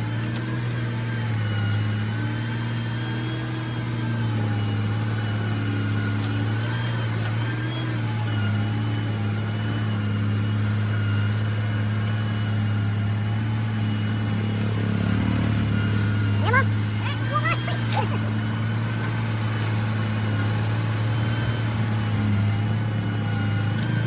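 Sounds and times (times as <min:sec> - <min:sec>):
heavy diesel engine droning: 0:00.0 - 0:24.0.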